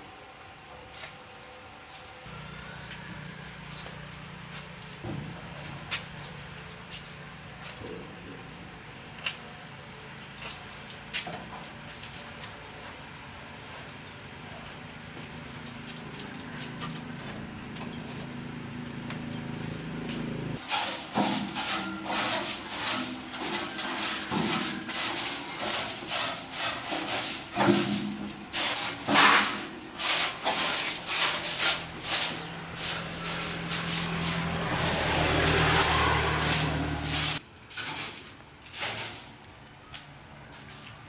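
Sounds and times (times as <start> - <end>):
knocks and scraping strikes: 20.6 - 39.3.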